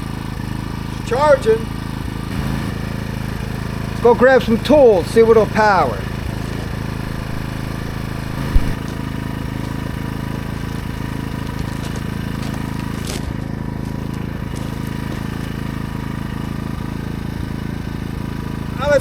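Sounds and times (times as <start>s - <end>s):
generator engine idling: 0.0s - 19.0s
thump: 7.1s - 8.8s.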